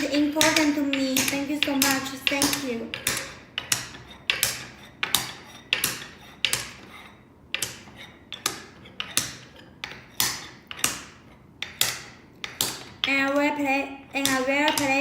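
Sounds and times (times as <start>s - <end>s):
wooden beads clacking: 0.0s - 13.4s, 14.1s - 15.0s.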